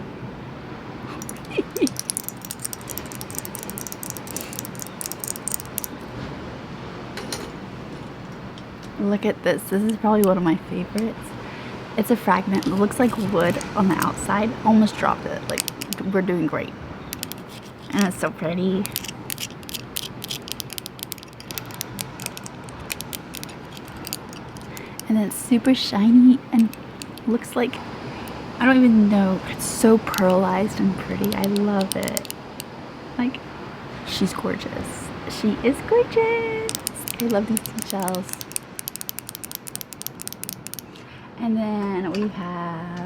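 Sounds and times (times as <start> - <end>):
seashells clicking together: 1.2 - 6.1, 9.8 - 11.4, 12.2 - 14.3, 14.9 - 16.1, 17.1 - 28.5, 29.5 - 32.7, 36.7 - 41.0.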